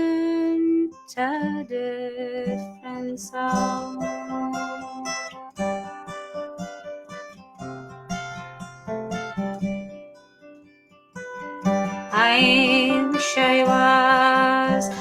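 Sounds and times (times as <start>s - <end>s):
acoustic guitar plucking and strumming: 0.0s - 15.0s.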